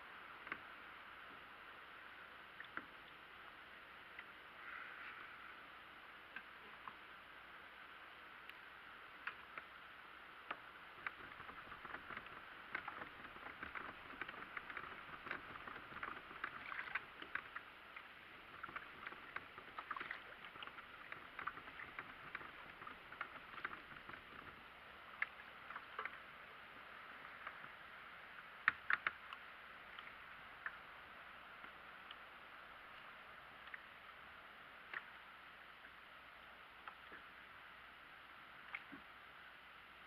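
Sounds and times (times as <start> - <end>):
water splashing against kayak: 9.2 - 30.9.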